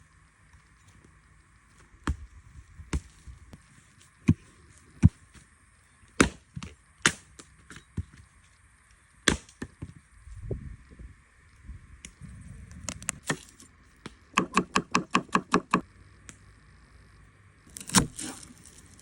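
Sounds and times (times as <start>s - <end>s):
blade chopping wood: 6.2s - 8.2s, 9.2s - 9.9s, 13.2s - 15.8s, 17.7s - 19.0s.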